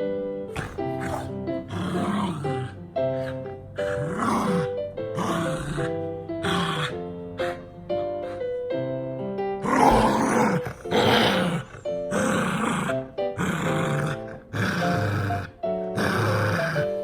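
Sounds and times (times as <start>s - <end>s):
background music: 0.0s - 17.0s
dog growling: 0.5s - 8.6s, 9.6s - 17.0s.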